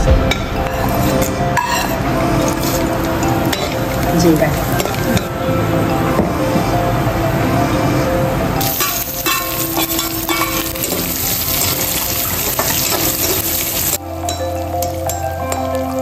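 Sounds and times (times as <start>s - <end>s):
metal spoon scraping a pan: 0.7s - 2.9s
spices and onions sizzling in oil: 8.6s - 15.3s.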